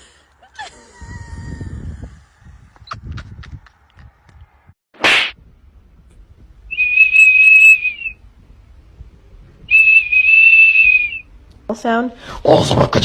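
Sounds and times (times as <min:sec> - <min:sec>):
long high-pitched whistles: 0:06.7 - 0:08.2, 0:09.7 - 0:11.3.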